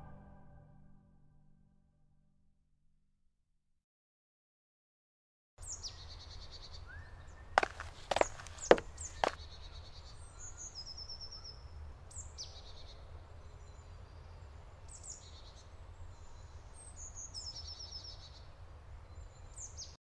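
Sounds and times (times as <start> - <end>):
songbird singing: 5.6 - 20.0.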